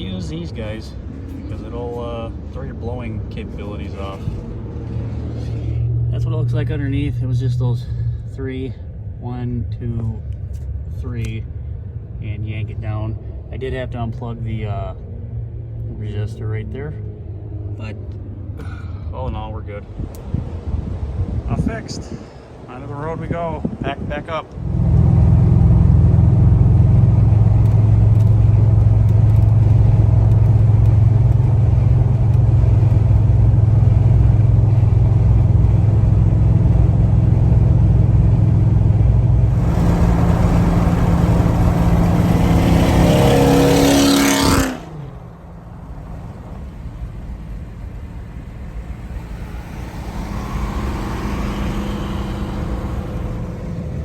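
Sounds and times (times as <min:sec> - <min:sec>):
quieter low engine running: 0:24.0 - 0:54.0
car engine accelerating: 0:24.5 - 0:54.0.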